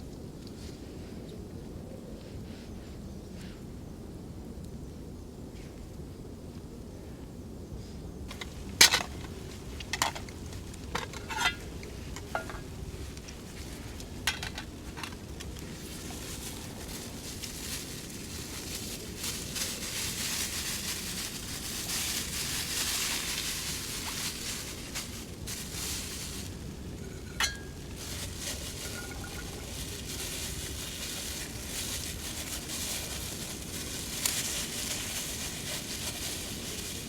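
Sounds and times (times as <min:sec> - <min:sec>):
steady high hiss: 0:02.4 - 0:37.0
metal cookware clinking: 0:27.2 - 0:27.7, 0:28.8 - 0:29.7.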